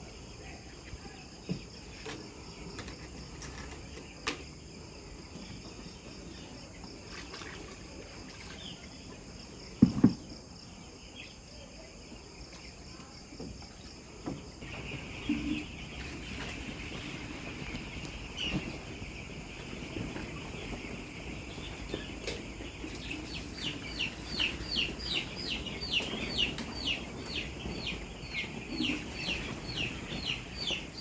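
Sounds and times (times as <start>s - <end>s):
chickens calling: 13.8s - 31.0s.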